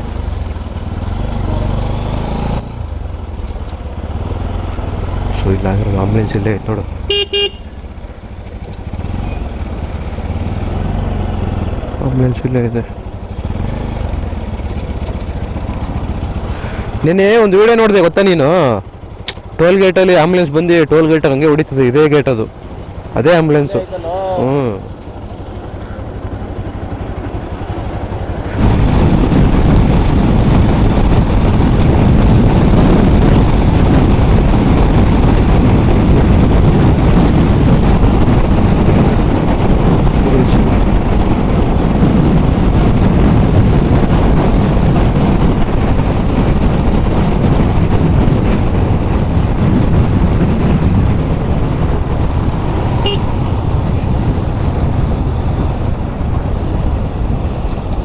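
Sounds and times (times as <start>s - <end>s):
motorcycle engine and road noise: 0.0s - 58.0s
wind rush on microphone: 22.6s - 58.0s.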